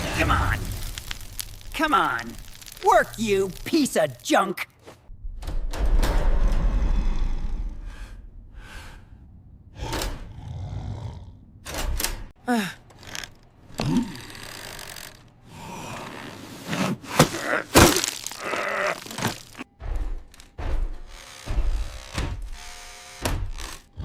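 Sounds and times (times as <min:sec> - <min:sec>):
vocal gasps and groans: 0:12.4 - 0:12.9.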